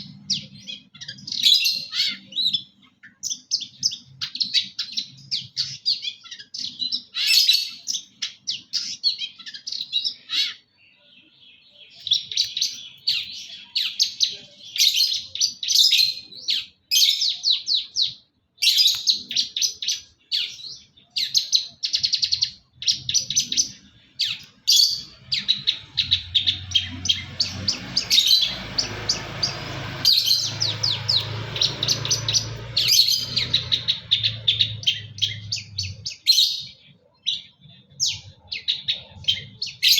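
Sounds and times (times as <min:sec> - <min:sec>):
shrike singing chattering chirps: 0:00.0 - 0:39.9.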